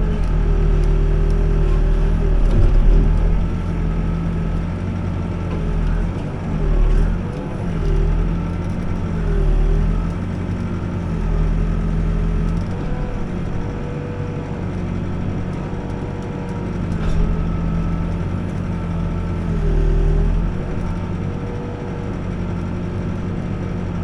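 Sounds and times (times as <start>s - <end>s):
backhoe diesel engine: 0.0s - 24.0s.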